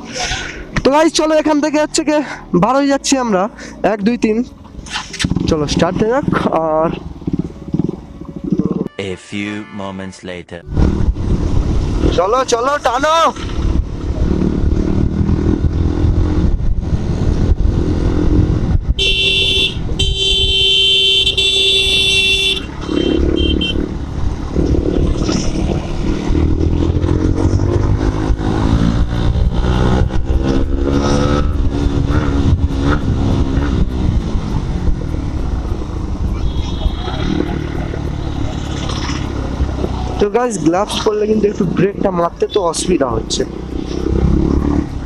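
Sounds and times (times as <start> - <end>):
motorcycle engine accelerating: 5.2 - 8.9, 10.7 - 12.4, 13.3 - 20.6, 22.0 - 40.3, 43.1 - 45.0
vehicle horn: 19.0 - 23.8, 36.4 - 37.3.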